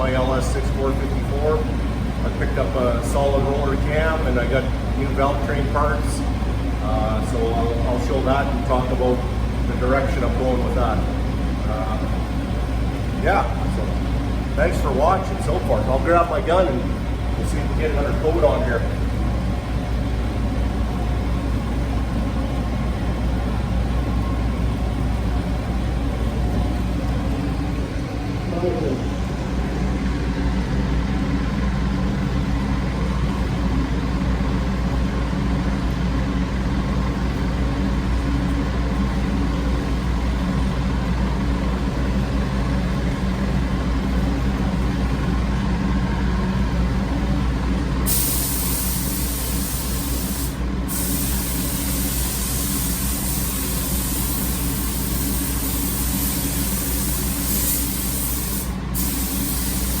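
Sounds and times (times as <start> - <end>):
low machine hum: 0.0 - 60.0
paint spray gun hissing: 48.1 - 60.0.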